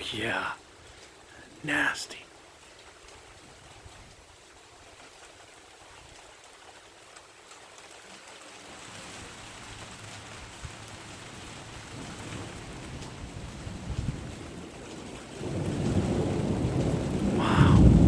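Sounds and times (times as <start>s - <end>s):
rain falling: 0.0s - 18.0s
thunder rumble: 10.4s - 18.0s.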